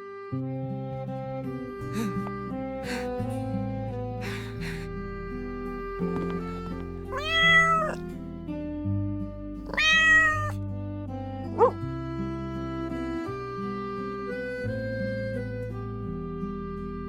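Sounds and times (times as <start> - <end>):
gentle background music: 0.0 - 9.8, 10.5 - 17.0
kitten meowing: 7.1 - 8.0, 9.7 - 10.6.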